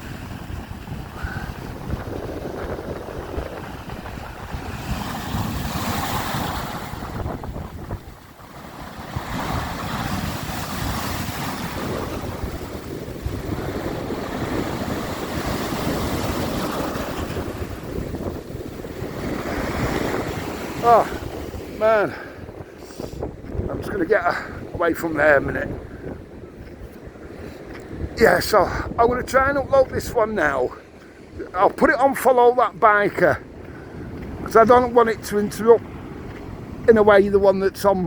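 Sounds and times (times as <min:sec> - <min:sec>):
heavy surf breaking: 0:00.0 - 0:38.0
wind buffeting the microphone: 0:00.0 - 0:38.0.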